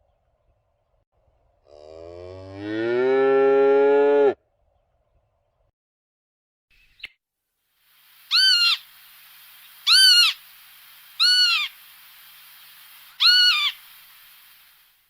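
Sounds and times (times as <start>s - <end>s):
steady hiss: 7.6s - 15.0s
bird calling shrilly: 8.2s - 14.8s.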